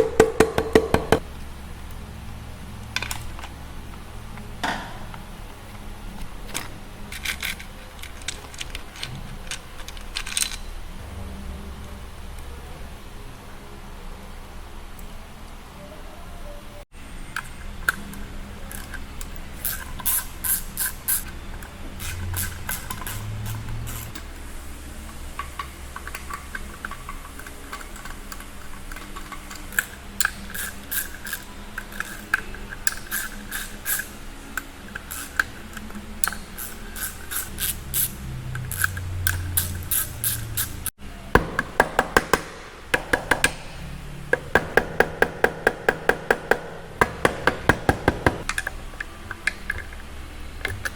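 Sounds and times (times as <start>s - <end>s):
ratchet wrench clicking: 17.4s - 24.3s, 25.4s - 40.9s.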